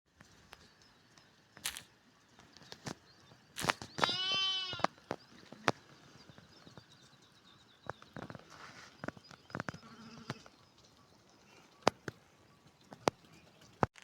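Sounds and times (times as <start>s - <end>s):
sheep bleating: 4.1s - 4.9s.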